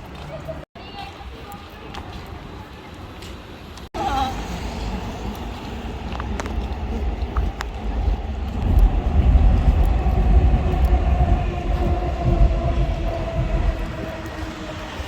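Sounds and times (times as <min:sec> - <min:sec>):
train rumbling: 0:03.9 - 0:15.0.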